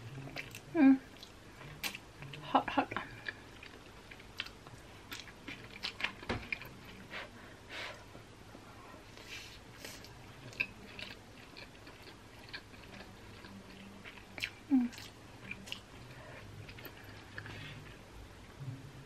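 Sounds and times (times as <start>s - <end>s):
wet chewing: 3.0s - 7.0s, 9.8s - 17.6s.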